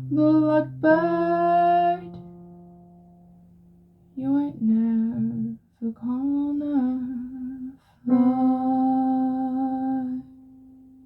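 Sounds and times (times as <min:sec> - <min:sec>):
person singing: 0:00.0 - 0:02.3, 0:04.2 - 0:10.5
faint steady tone: 0:00.0 - 0:11.0.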